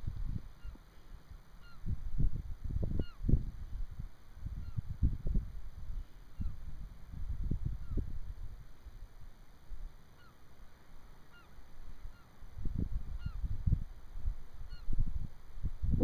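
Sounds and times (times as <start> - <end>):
wind rumbling on microphone: 0.0 - 10.0, 11.8 - 16.0
distant birds honking: 11.2 - 12.4.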